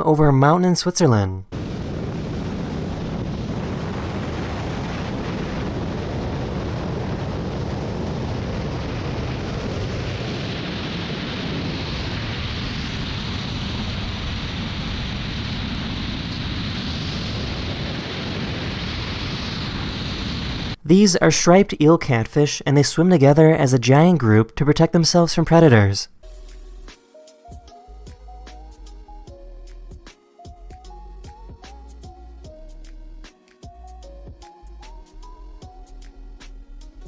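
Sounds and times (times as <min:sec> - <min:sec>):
heavy wind over microphone: 0:01.5 - 0:20.8.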